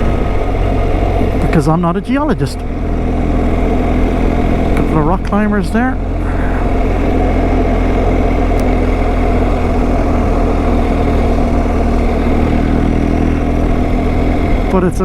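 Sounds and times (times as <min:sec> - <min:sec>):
wind noise: 0:00.0 - 0:01.7
motorcycle engine cruising: 0:00.0 - 0:15.0
road noise: 0:00.0 - 0:15.0.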